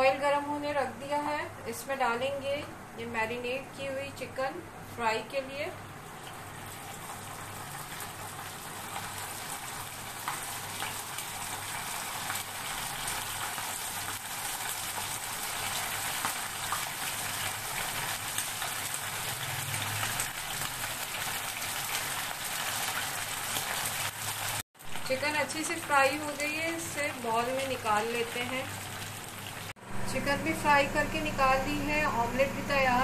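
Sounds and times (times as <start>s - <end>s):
chicken sizzling in hot oil: 6.2s - 29.8s.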